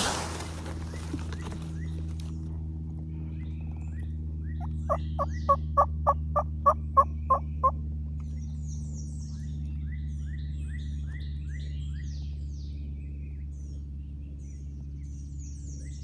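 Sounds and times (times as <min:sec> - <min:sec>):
songbirds chirping: 0:03.4 - 0:07.7
turkey yelping: 0:04.6 - 0:07.8.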